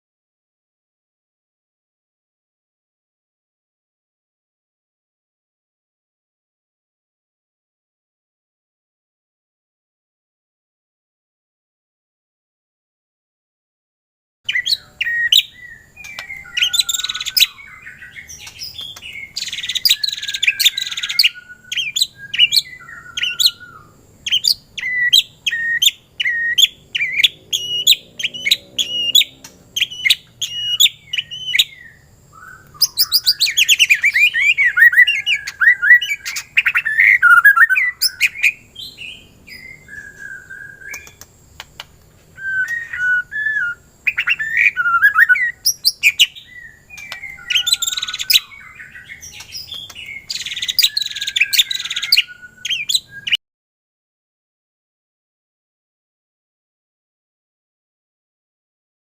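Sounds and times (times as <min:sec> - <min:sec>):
songbird whistling and trilling: 0:14.5 - 0:41.6, 0:42.3 - 0:53.4.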